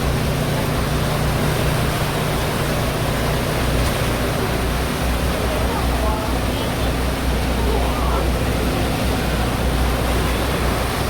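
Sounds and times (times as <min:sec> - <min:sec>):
ferry engines droning: 0:00.0 - 0:11.0
wind and water rushing: 0:00.0 - 0:11.0.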